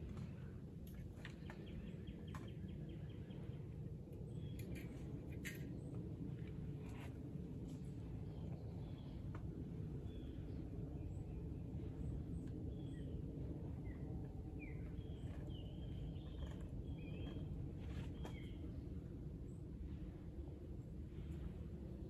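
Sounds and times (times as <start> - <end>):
low background rumble: 0.0 - 22.0
birds chirping: 10.1 - 18.6.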